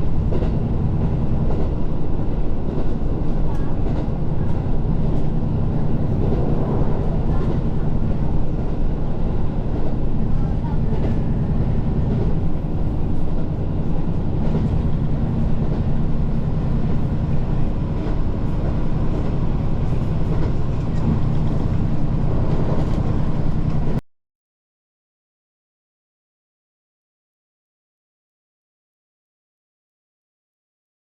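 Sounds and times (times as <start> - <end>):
train running on track: 0.0 - 24.0.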